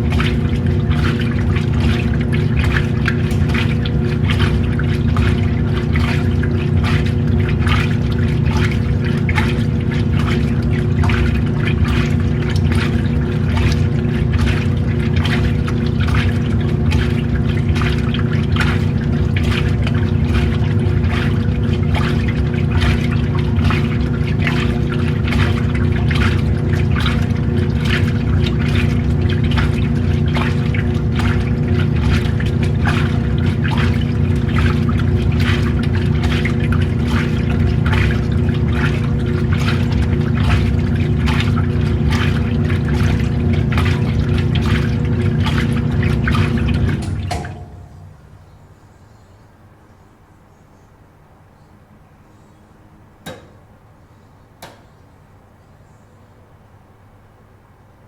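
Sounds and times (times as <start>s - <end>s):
water sloshing and splashing: 0.0s - 49.4s
washing machine motor hum: 0.0s - 58.0s.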